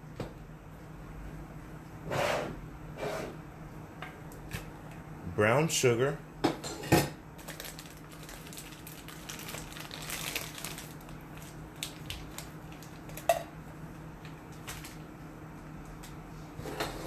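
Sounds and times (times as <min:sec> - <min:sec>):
steady low hum: 0:00.0 - 0:17.0
packaging rustling and crinkling: 0:07.4 - 0:13.3, 0:14.5 - 0:15.1.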